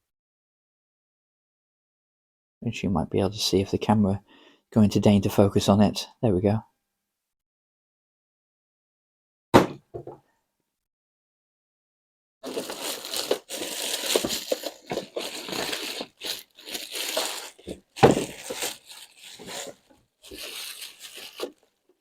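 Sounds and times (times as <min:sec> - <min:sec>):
plastic wrapping crinkling: 0:12.4 - 0:22.0.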